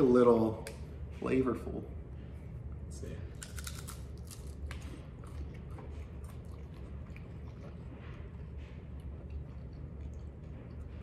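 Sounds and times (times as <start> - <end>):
steady low hum: 0.0 - 11.0
people chewing crunchy chips: 3.3 - 11.0.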